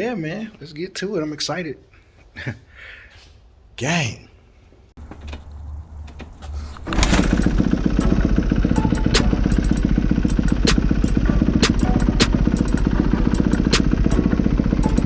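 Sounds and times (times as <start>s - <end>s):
dirt bike engine revving: 6.8s - 15.0s.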